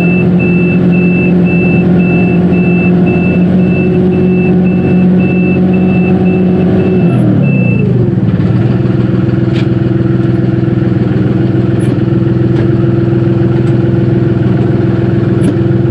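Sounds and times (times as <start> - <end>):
reverse warning beeper: 0.0 - 8.0
tractor diesel engine running: 0.0 - 15.9.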